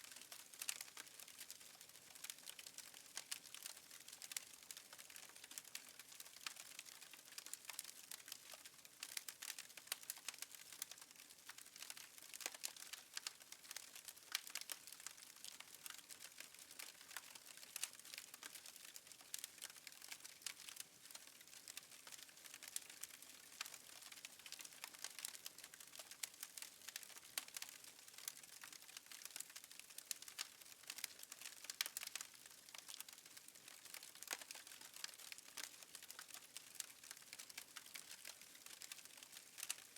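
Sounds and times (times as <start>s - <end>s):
fire crackling: 30.9s - 33.2s.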